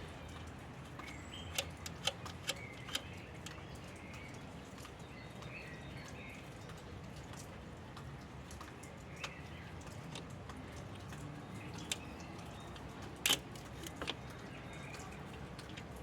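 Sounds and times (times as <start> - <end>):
sharp clicks: 1.0 - 3.6.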